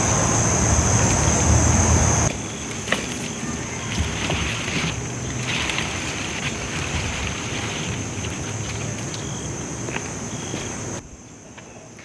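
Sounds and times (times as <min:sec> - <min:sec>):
wind rumbling on microphone: 0:00.0 - 0:02.3
high insect trill: 0:00.0 - 0:11.4.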